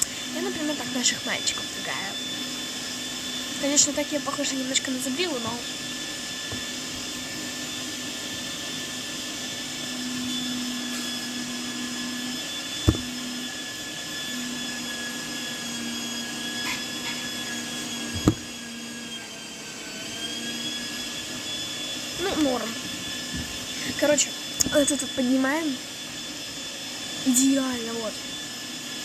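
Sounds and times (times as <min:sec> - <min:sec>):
kitchen appliance motor whine: 0:00.0 - 0:29.0
sharp knocks: 0:12.8 - 0:13.1, 0:18.2 - 0:18.4.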